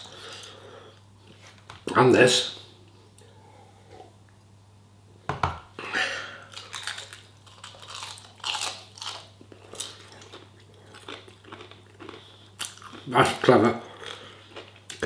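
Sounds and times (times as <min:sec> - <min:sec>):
crunchy snack chewing: 0:06.4 - 0:15.0.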